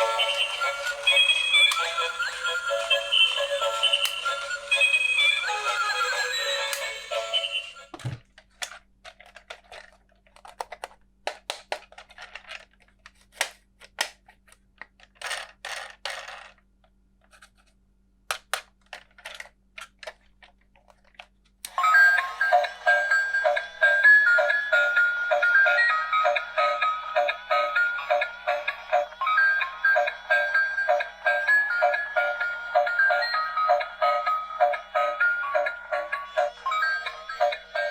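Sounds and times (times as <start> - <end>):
tinny electronic melody: 0.0 - 7.9, 21.7 - 37.9
plastic toy parts clicking: 8.3 - 16.6, 18.3 - 21.8.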